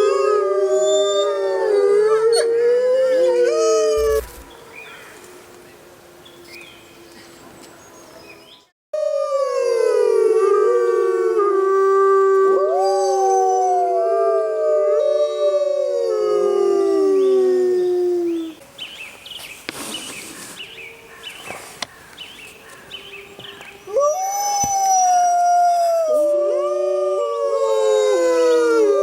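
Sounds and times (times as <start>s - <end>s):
wolves howling in chorus: 0.0s - 5.3s, 9.0s - 18.6s, 23.1s - 29.0s.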